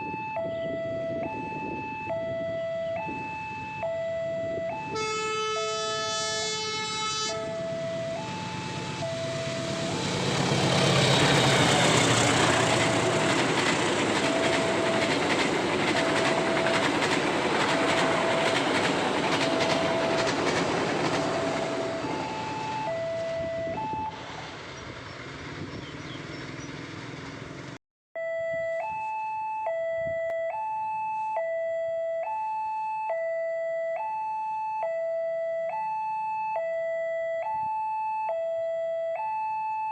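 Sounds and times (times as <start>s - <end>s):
level crossing warning alarm: 0.0s - 24.6s, 28.2s - 39.9s
horn blast: 4.9s - 15.2s
train rumbling past: 5.2s - 27.8s.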